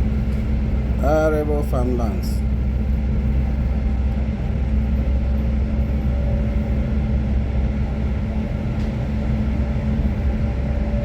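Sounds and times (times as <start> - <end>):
constant hum: 0.0 - 11.0
train rumble: 0.0 - 11.0.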